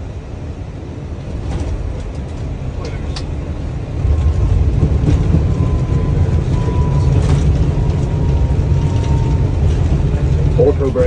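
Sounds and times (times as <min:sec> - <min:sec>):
engine and wheels rumble: 0:00.0 - 0:11.0.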